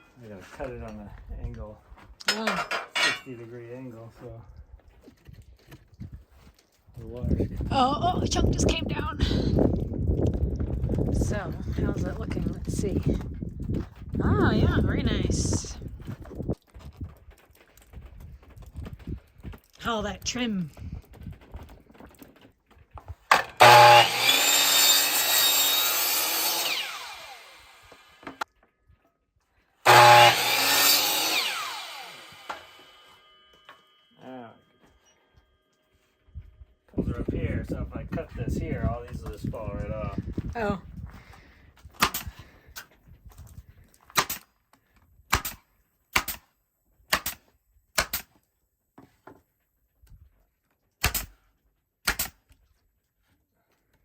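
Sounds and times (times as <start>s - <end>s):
power saw cutting wood: 23.3s - 28.5s, 29.8s - 34.1s
staple gun firing: 45.3s - 45.6s, 46.2s - 46.4s, 47.1s - 47.4s, 48.0s - 48.3s, 51.0s - 51.3s, 52.1s - 52.4s.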